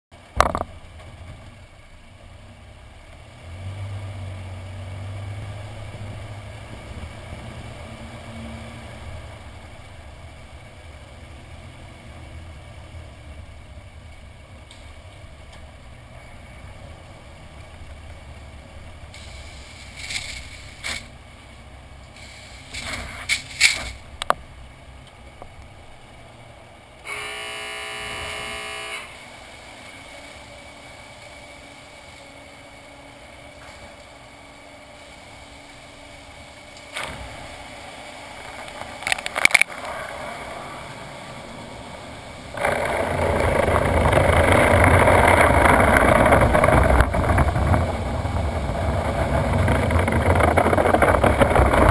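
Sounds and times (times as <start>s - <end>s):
truck idling: 0.1s - 51.9s
knocks and clatters: 0.3s - 1.5s, 42.6s - 51.9s
pitched buzzing tone: 27.0s - 29.5s.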